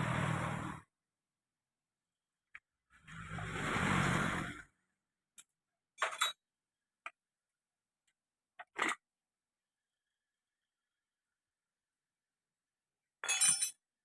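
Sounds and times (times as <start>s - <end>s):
rough noise: 0.0s - 0.9s, 3.0s - 4.8s.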